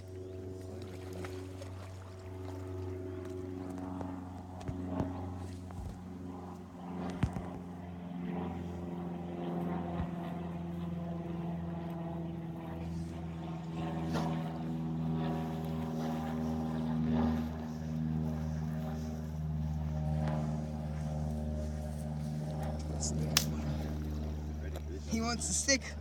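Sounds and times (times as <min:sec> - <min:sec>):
engine humming: 0:09.8 - 0:26.0.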